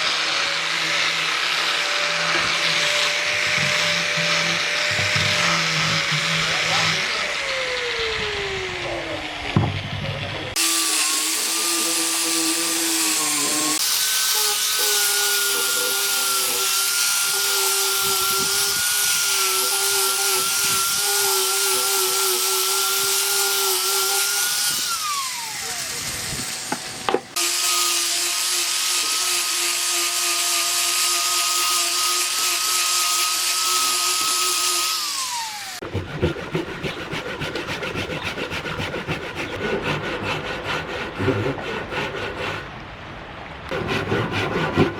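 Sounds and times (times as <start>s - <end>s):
power tool motor whining: 0.0s - 35.8s
rhythmic scraping on wood: 0.6s - 7.2s, 35.8s - 42.7s, 43.7s - 44.9s.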